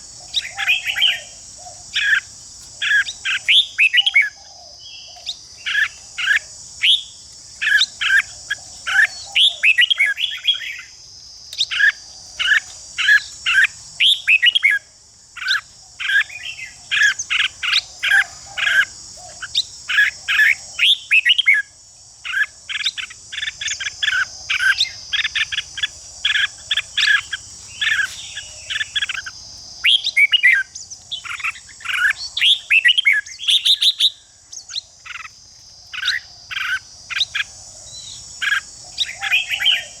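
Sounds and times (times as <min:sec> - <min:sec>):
steady high hiss: 0:00.0 - 0:40.0
bird whistling song: 0:00.3 - 0:10.9, 0:14.0 - 0:14.8, 0:22.8 - 0:35.3.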